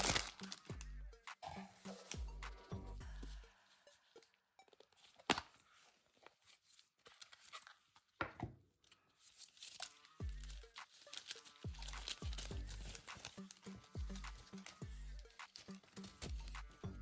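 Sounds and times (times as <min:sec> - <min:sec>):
packaging crinkling and tearing: 0:00.0 - 0:00.8, 0:04.8 - 0:08.2, 0:08.9 - 0:16.7
background music: 0:00.0 - 0:07.7, 0:08.8 - 0:17.0.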